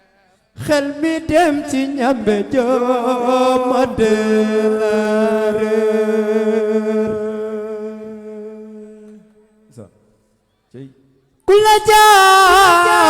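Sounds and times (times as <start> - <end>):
person singing a long note: 11.5 - 13.0.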